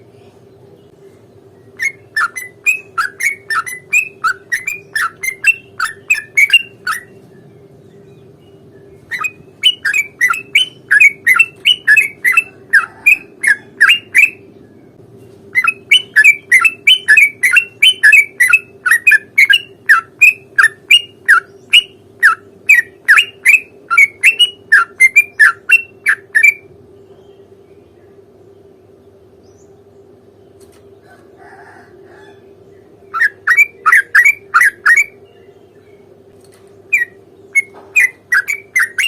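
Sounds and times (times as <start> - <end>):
bird singing bubbly repeated notes: 1.6 - 7.3, 8.1 - 14.5, 15.6 - 26.7, 33.0 - 35.8, 36.9 - 39.0.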